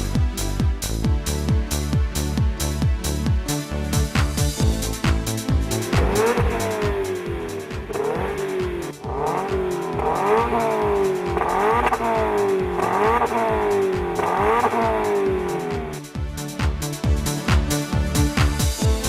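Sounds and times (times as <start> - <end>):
electronic music with beat: 0.0 - 19.0
car engine revving: 5.3 - 16.1.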